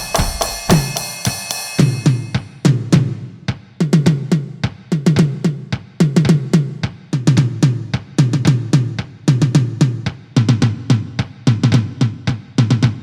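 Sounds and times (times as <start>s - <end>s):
electronic drum hits: 0.0s - 2.4s.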